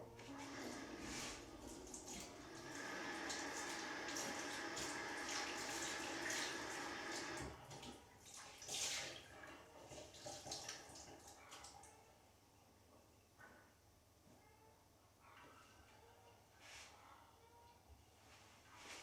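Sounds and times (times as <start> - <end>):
water running: 0.0 - 11.8.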